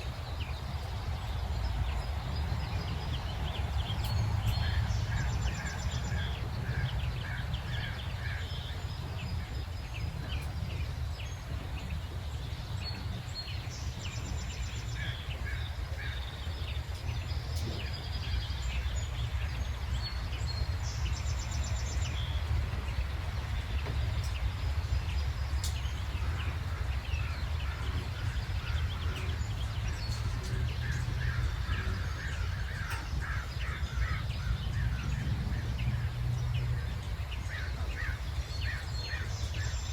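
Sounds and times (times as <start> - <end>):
low background rumble: 0.0 - 39.9
songbirds chirping and trilling: 0.0 - 39.9.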